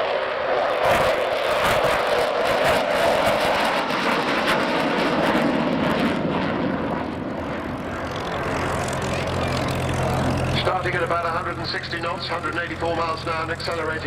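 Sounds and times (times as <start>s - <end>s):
jet engines roaring: 0.0s - 14.0s
steady low hum: 7.4s - 14.0s.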